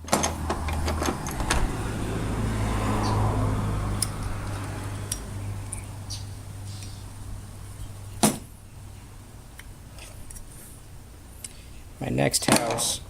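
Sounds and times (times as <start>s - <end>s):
low steady hum: 0.0s - 13.0s
hand tools clicking on metal: 4.0s - 5.9s.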